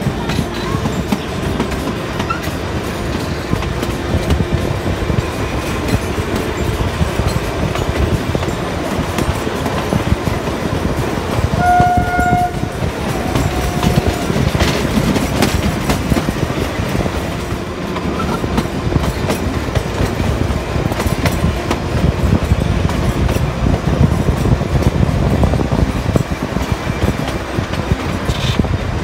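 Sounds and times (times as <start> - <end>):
train wheels clattering on track: 0.0 - 29.0
train horn blast: 11.4 - 14.7.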